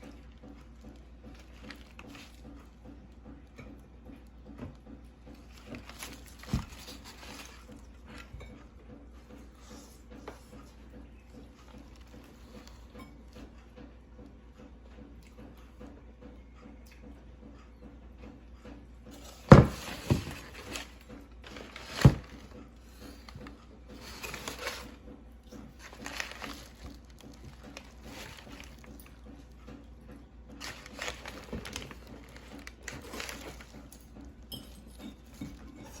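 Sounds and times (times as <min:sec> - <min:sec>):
rubbing and clatter: 0:05.3 - 0:08.3, 0:19.3 - 0:29.8, 0:30.5 - 0:36.0.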